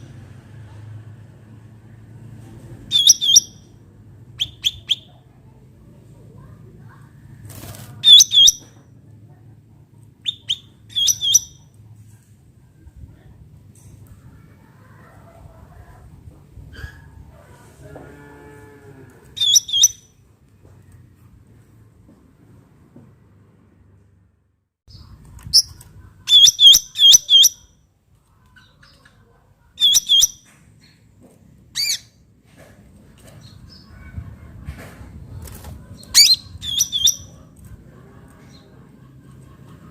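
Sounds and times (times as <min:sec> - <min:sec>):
bulbul calling: 0:02.9 - 0:03.6, 0:08.0 - 0:08.6.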